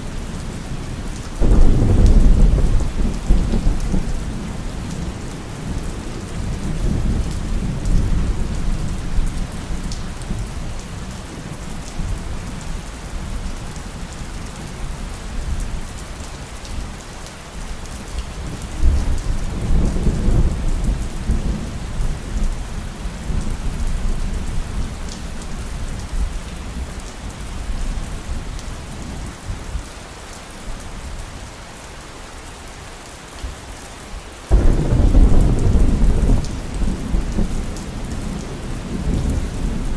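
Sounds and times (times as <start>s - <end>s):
heavy rain: 0.0s - 39.9s
rolling thunder: 1.4s - 8.9s, 34.5s - 39.9s
loud thunder clap: 34.5s - 38.0s.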